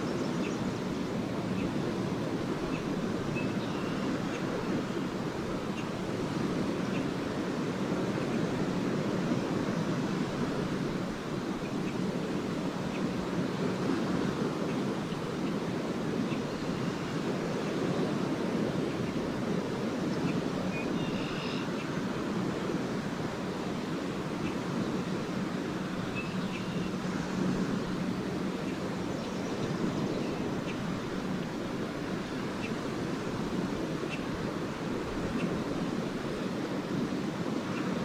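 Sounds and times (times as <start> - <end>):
small waves washing onto shore: 0.0 - 38.0
faint swallow twitters: 26.0 - 27.0.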